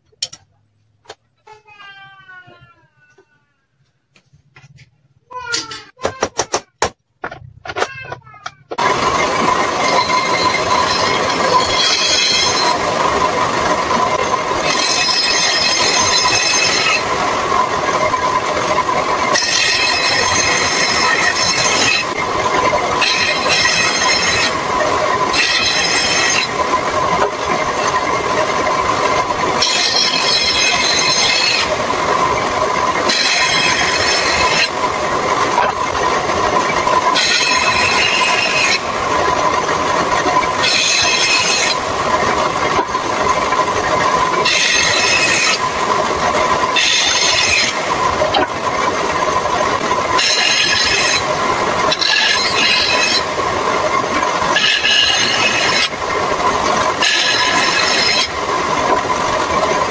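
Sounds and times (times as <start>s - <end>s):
table saw whining: 7.2s - 59.9s
saw blade screeching through wood: 7.9s - 12.8s, 14.2s - 17.1s, 19.2s - 24.6s, 25.2s - 26.6s, 29.6s - 31.7s, 33.0s - 34.8s, 36.6s - 38.8s, 40.4s - 41.9s, 43.8s - 45.7s, 46.7s - 48.5s, 50.1s - 53.3s, 54.4s - 56.0s, 57.0s - 58.4s.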